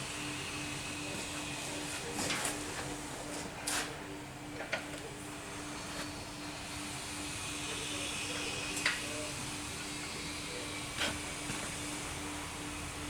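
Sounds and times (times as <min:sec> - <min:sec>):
steady hiss: 0:05.3 - 0:13.0.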